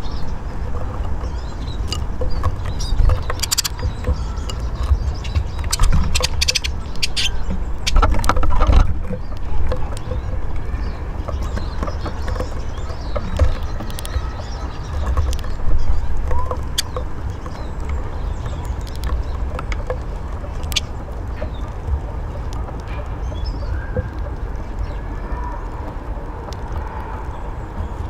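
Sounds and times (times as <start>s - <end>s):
birds tapping and scrabbling: 0.0s - 28.0s
faint high bird chirps: 1.3s - 21.7s.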